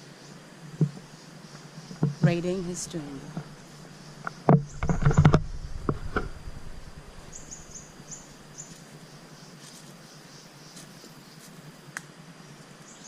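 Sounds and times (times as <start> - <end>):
insects humming: 0.0 - 13.0
bird chirping: 1.0 - 11.5
loud knocks and thumps: 4.5 - 7.3.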